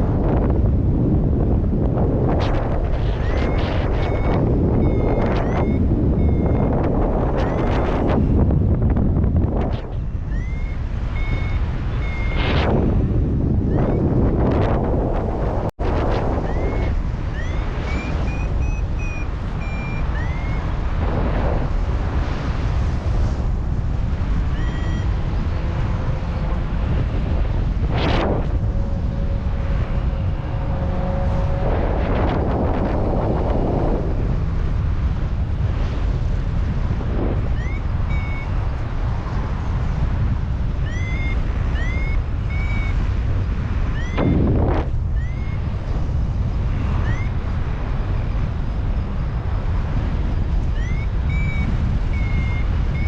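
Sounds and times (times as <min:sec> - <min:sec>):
wind buffeting microphone: 0:00.0 - 0:53.0
variometer beeping: 0:03.1 - 0:08.2, 0:09.5 - 0:12.7, 0:13.6 - 0:14.7, 0:16.2 - 0:20.9, 0:24.4 - 0:26.4, 0:37.4 - 0:38.8, 0:40.8 - 0:43.1, 0:43.8 - 0:45.8, 0:46.8 - 0:47.6, 0:50.6 - 0:53.0.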